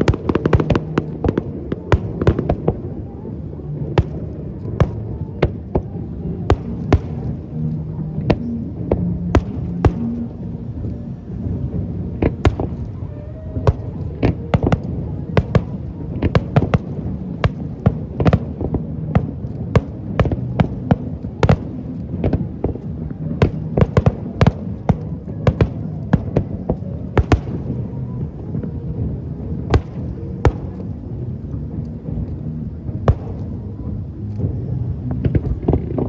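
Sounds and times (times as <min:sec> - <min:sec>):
fireworks bangs: 0:00.0 - 0:03.2, 0:11.4 - 0:36.0
continuous low rumble: 0:00.0 - 0:36.0.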